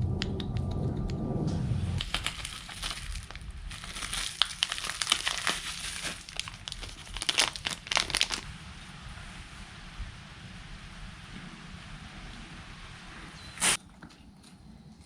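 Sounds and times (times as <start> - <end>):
sharp crackles: 0.0 - 13.8
crinkling and clicking of handling: 2.0 - 8.4.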